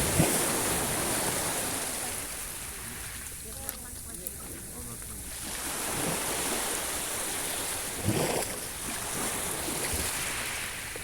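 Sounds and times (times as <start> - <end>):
wave breaking: 0.0 - 3.3
sea waves washing ashore: 0.0 - 11.0.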